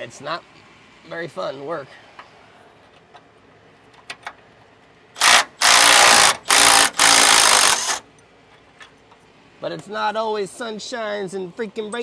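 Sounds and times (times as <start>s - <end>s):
tool rasping: 5.2s - 8.0s.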